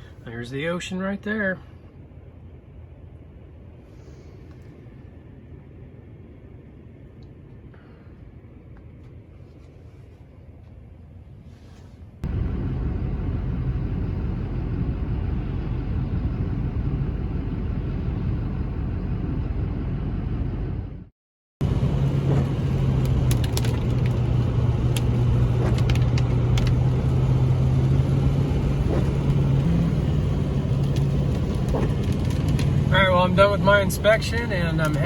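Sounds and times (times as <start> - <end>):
road rumble inside truck: 0.0 - 35.0
engine drone: 11.2 - 35.0.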